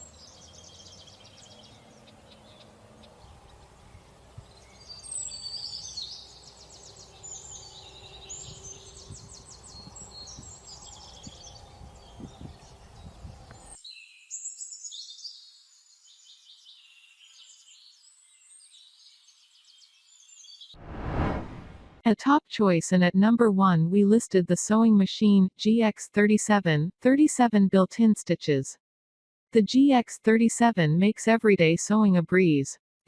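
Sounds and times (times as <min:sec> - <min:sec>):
small birds chirping: 0:00.0 - 0:20.7.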